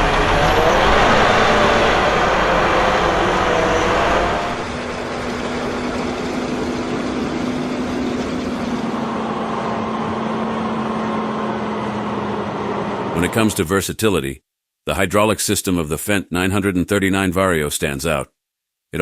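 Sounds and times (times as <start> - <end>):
tractor diesel engine running: 0.0 - 13.6.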